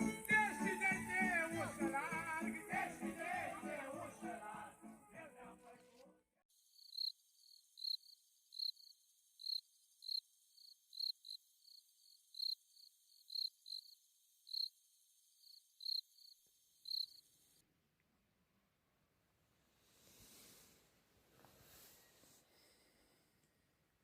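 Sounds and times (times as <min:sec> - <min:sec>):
insect chirping: 0:06.5 - 0:17.6.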